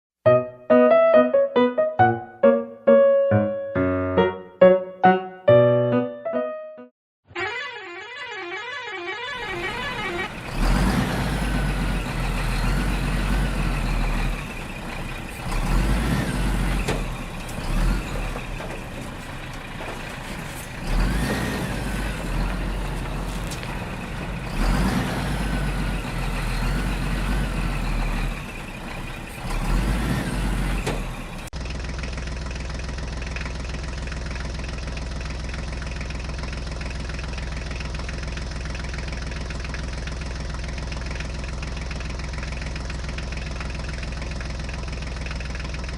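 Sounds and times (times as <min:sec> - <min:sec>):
heavy vehicle engine: 0:09.2 - 0:45.9.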